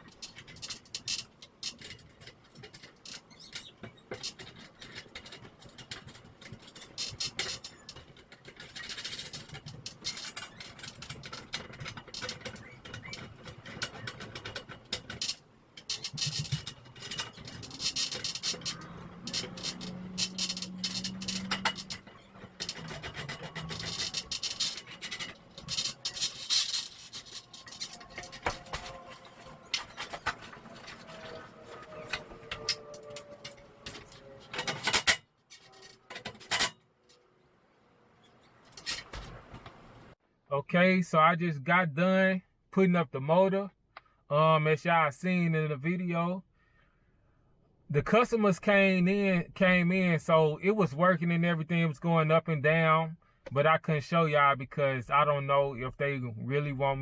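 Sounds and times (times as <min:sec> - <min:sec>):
metal hardware scraping and rattling: 0:00.0 - 0:37.4, 0:38.2 - 0:40.2.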